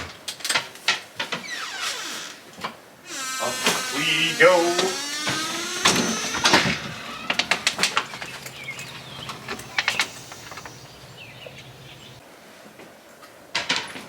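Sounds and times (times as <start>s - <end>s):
sharp clicks and knocks: 3.1s - 11.7s
faint bird chirps: 8.1s - 12.2s.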